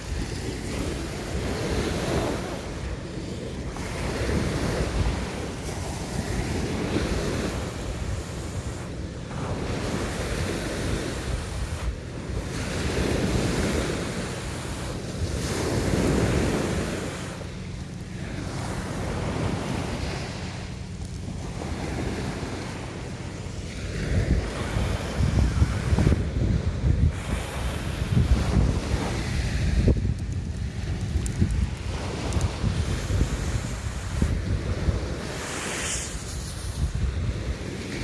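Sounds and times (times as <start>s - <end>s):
sea waves washing ashore: 0.0s - 38.0s
wind rumbling on microphone: 0.0s - 38.0s.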